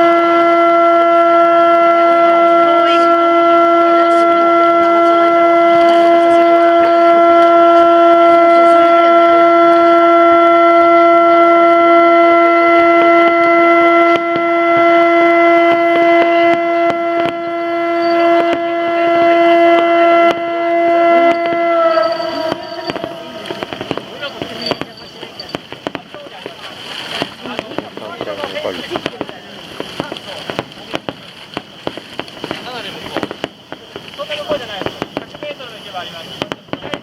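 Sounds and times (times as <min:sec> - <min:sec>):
long siren-like tone: 0:00.0 - 0:27.1
short pops and crackles: 0:12.6 - 0:37.0.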